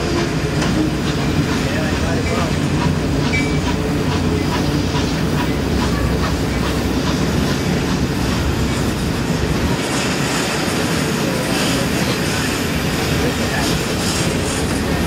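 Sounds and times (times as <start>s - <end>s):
clickety-clack over rail joints: 0.0s - 15.0s
train wheels rumbling on rail: 0.0s - 15.0s.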